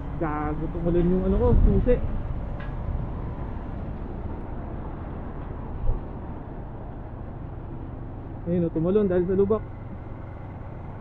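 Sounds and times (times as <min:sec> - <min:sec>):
wind noise: 0:00.0 - 0:07.6
motorcycle on wet road: 0:09.1 - 0:11.0.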